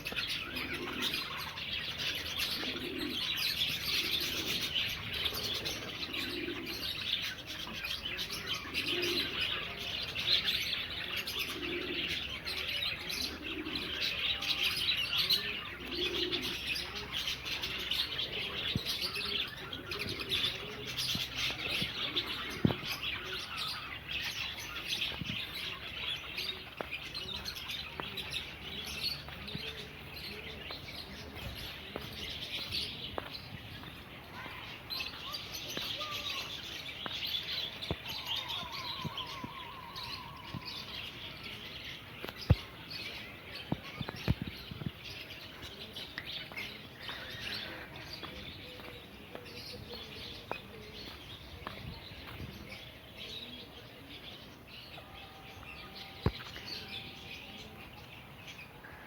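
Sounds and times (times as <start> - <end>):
doves cooing: 0.0 - 59.0
small cage birds chirping: 0.0 - 59.0.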